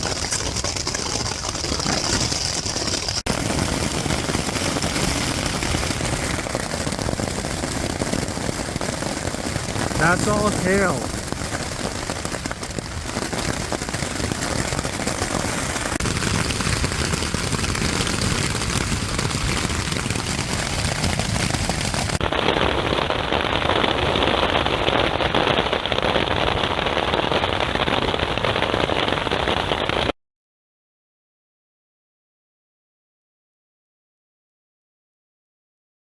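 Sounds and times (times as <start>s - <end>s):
hail rattling: 0.0s - 24.8s.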